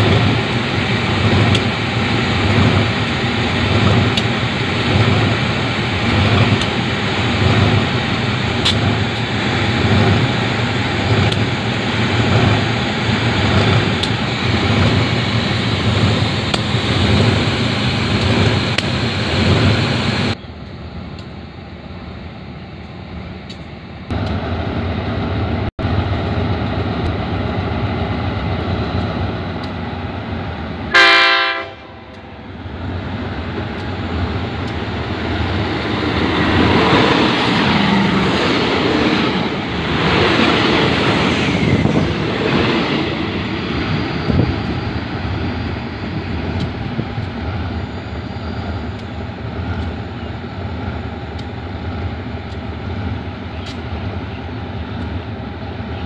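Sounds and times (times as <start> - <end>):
diesel locomotive running: 0.0 - 56.0
passenger train passing: 0.0 - 56.0
train horn blast: 30.9 - 32.3.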